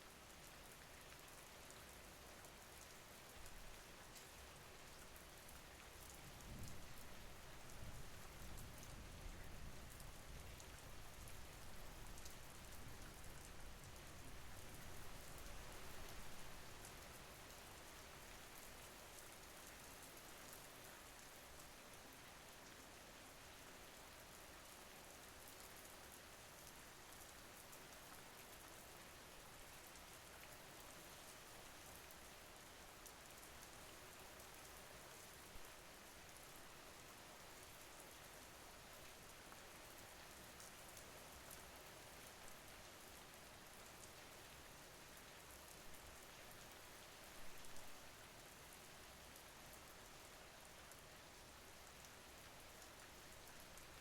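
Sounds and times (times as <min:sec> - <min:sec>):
faint rain falling: 0:00.0 - 0:54.0.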